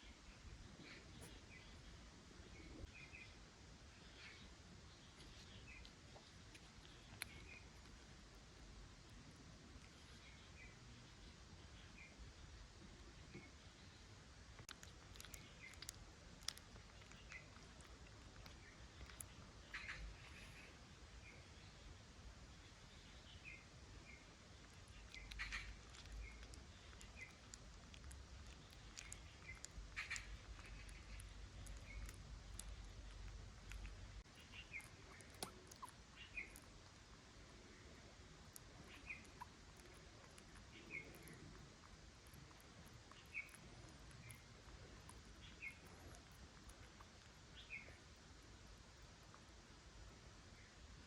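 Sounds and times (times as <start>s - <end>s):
low steady hiss: 0.0s - 51.0s
faint high-pitched chirps: 13.2s - 36.8s, 37.6s - 48.3s.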